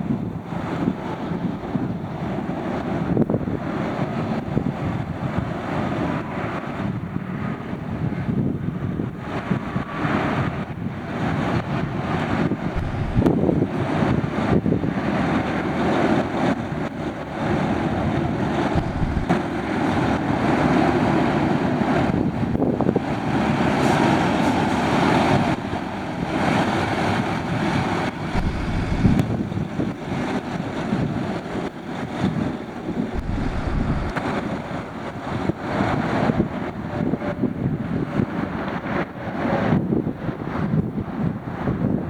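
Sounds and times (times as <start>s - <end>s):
wind buffeting microphone: 0.0s - 42.0s
truck engine running: 12.7s - 13.4s, 18.7s - 19.4s, 28.3s - 29.6s, 33.2s - 34.2s.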